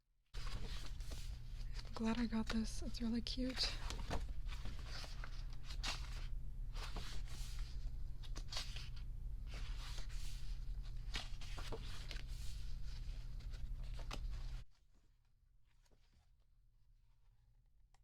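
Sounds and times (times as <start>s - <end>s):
steady low hum: 0.4s - 14.6s
paper pages rustling: 0.4s - 16.4s.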